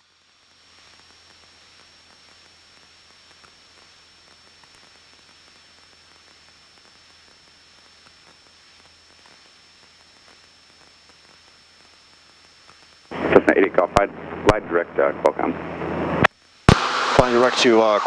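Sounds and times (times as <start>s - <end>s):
thin high whine: 6.8s - 18.0s
low hum: 13.0s - 18.0s
intercom hiss: 13.1s - 18.0s.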